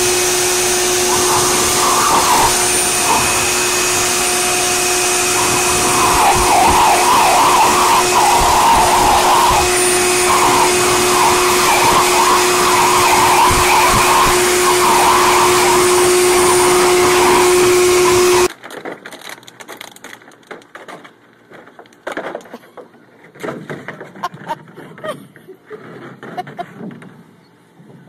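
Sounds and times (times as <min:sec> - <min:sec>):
electric blower running: 0:00.0 - 0:18.5
knocks and rustles: 0:18.5 - 0:25.0.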